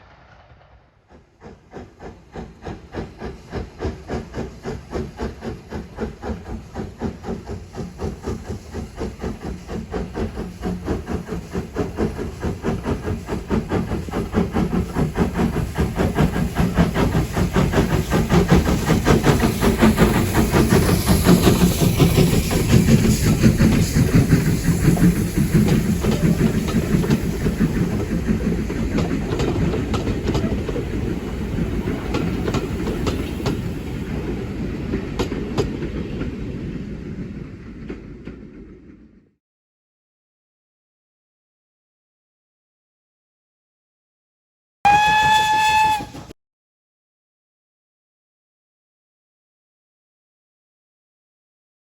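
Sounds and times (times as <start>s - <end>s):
steam locomotive chuffing: 0.0s - 36.6s, 44.9s - 46.4s
train wheels clacking over joints: 1.1s - 36.4s.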